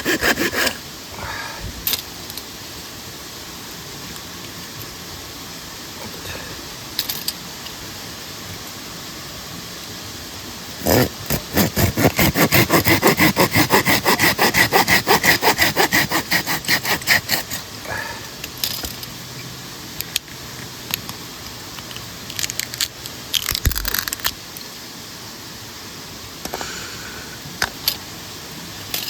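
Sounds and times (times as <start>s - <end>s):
hand saw cutting wood: 0.0s - 0.8s, 10.8s - 17.7s.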